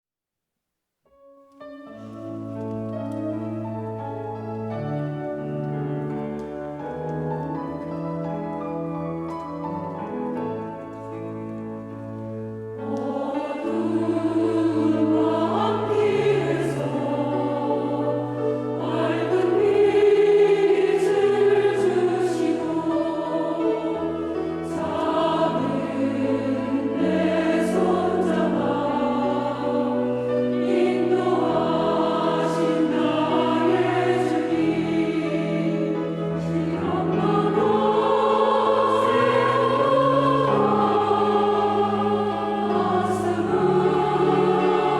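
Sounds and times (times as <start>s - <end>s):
sustained accompaniment: 1.6s - 44.9s
choir singing a hymn: 1.9s - 44.9s.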